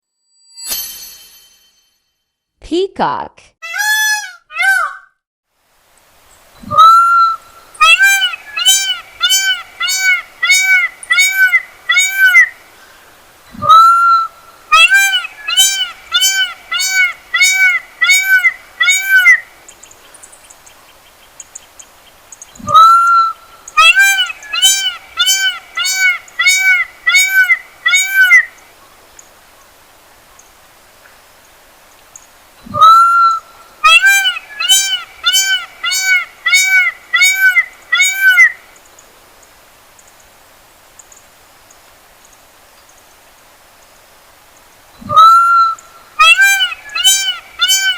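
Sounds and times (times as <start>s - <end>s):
peacock calling: 3.6s - 5.1s, 6.6s - 12.6s, 13.6s - 28.6s, 32.7s - 38.7s, 45.0s - 47.9s.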